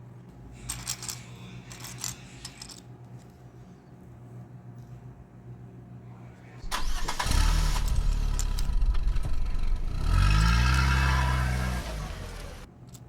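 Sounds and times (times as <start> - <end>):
large engine revving: 7.2 - 12.7.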